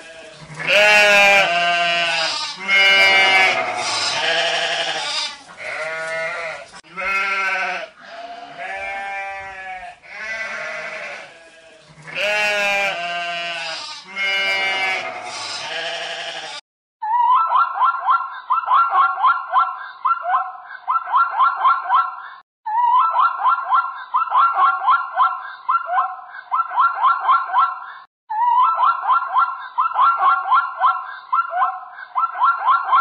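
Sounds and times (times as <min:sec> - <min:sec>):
sheep bleating: 0:00.0 - 0:16.6.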